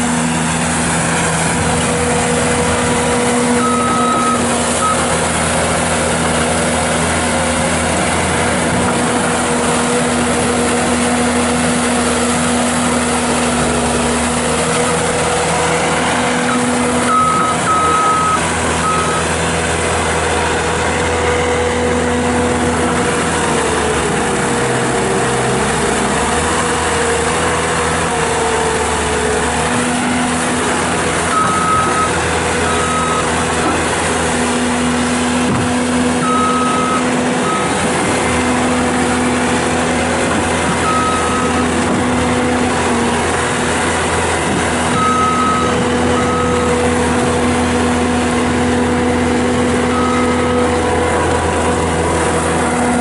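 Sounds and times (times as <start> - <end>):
diesel engine running: 0.0 - 53.0
backup alarm beeps: 3.6 - 5.0, 16.5 - 19.3, 31.3 - 33.3.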